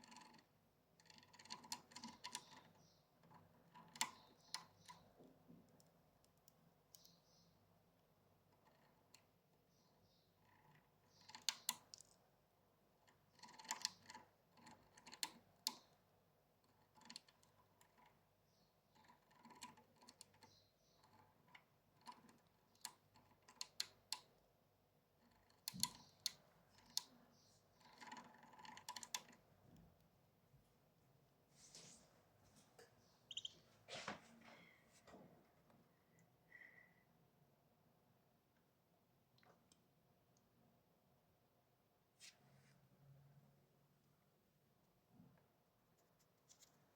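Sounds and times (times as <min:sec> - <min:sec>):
bird beak pecking seeds: 0:33.3 - 0:33.5.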